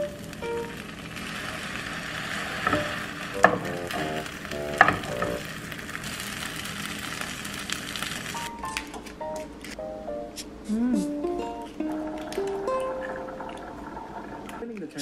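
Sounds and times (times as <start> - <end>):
food sizzling in a pan: 0.0 - 8.7
wooden spatula tapping a pan: 2.6 - 5.4.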